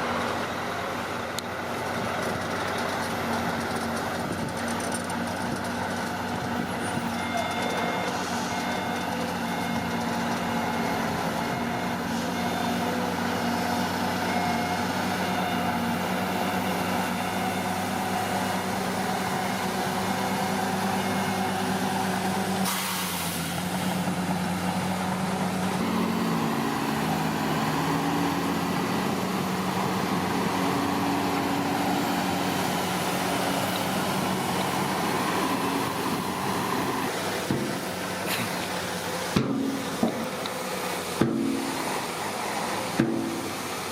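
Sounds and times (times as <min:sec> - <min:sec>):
bulldozer diesel engine running: 0:00.0 - 0:43.9
short hiss: 0:22.6 - 0:23.4.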